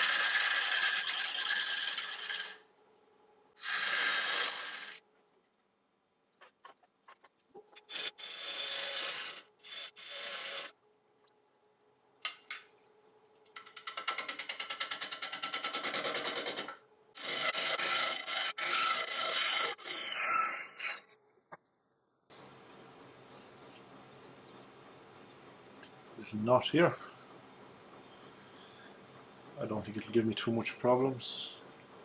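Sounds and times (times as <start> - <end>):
lathe tool rasping on wood: 0.0 - 2.6, 3.6 - 5.0, 7.9 - 10.7, 13.7 - 21.0.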